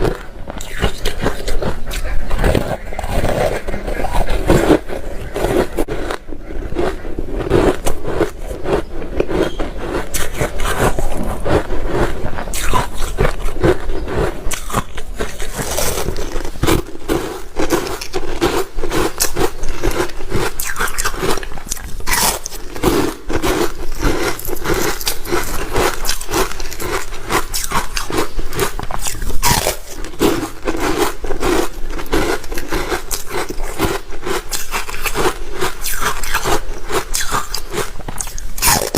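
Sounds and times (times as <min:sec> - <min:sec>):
ice crunching while chewed: 0:00.0 - 0:38.9.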